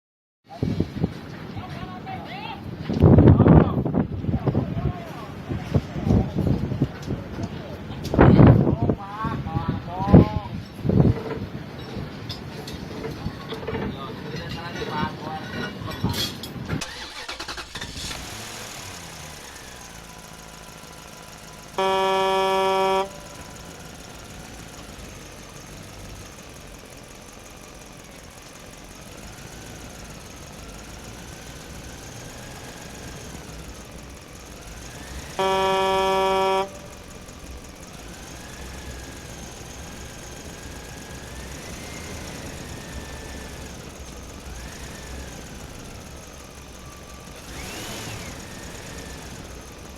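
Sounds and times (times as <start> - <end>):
truck engine running: 0.9 - 14.6, 16.3 - 49.9
truck horn blasts: 18.0 - 26.5, 30.4 - 44.0.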